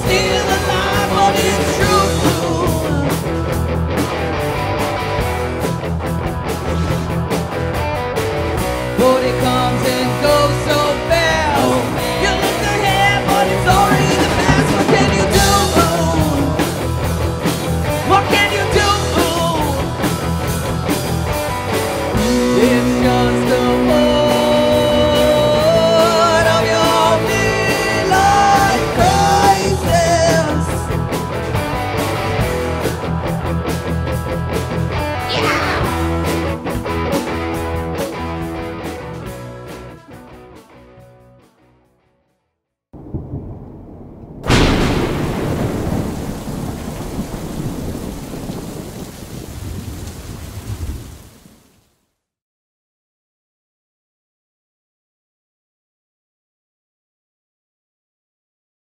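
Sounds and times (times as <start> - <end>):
bending lead melody: 0.0 - 41.0
rock band playing: 0.0 - 41.8.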